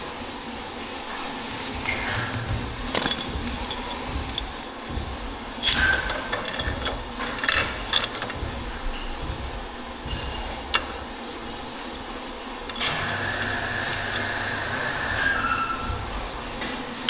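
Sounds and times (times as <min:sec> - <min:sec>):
metal tools clinking: 0:01.6 - 0:09.3, 0:10.0 - 0:11.2, 0:12.6 - 0:15.4
sharp knocks with ringing: 0:01.9 - 0:11.2.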